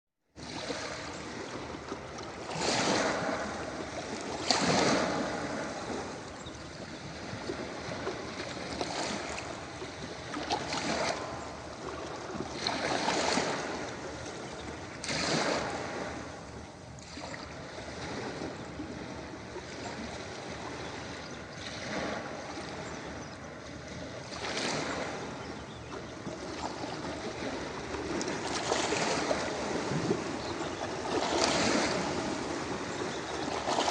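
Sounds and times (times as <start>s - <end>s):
ocean surf breaking on beach: 0.4s - 6.5s, 7.1s - 16.6s, 24.0s - 25.4s, 26.4s - 33.9s.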